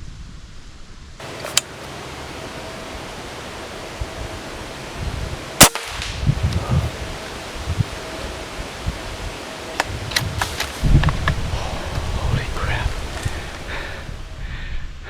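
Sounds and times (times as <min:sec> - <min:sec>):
wind buffeting microphone: 0:01.2 - 0:15.0
gunshot: 0:05.6 - 0:06.3.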